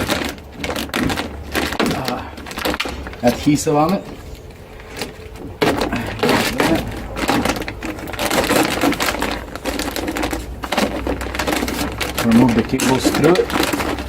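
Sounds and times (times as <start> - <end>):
plastic lining peeling off: 0.0 - 14.0.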